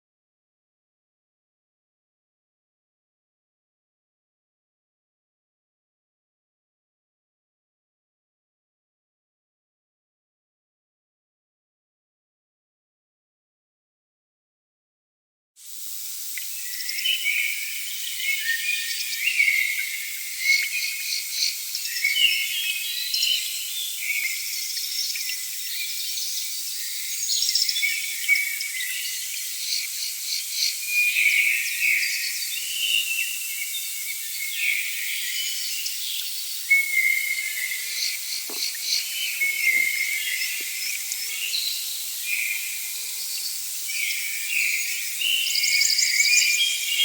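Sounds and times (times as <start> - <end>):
insects chirping and trilling: 15.6 - 47.0
steady hiss: 15.6 - 47.0
birds chirping: 17.0 - 47.0.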